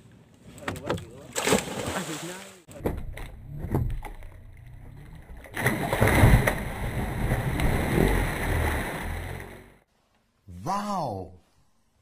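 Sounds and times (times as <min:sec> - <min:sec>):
churning water: 0:01.3 - 0:09.8
splash of person diving: 0:01.4 - 0:02.4, 0:05.5 - 0:09.6.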